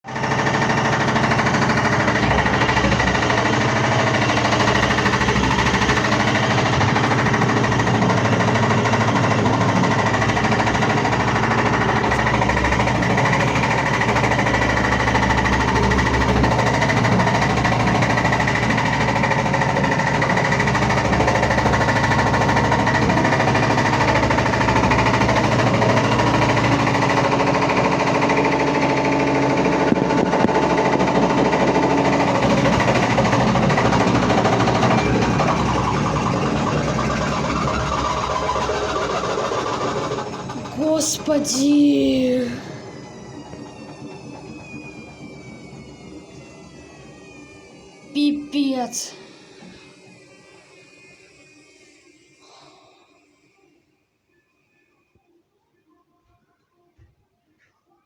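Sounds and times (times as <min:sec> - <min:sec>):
washing machine spinning: 0:00.0 - 0:53.3
drum knocking rapidly: 0:00.1 - 0:41.3.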